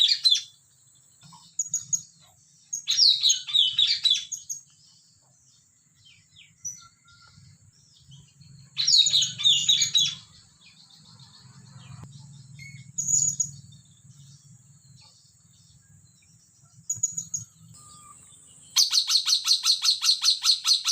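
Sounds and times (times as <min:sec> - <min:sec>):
parrot calling with sharp chirps: 0:02.8 - 0:04.6, 0:08.8 - 0:10.4, 0:17.0 - 0:20.9.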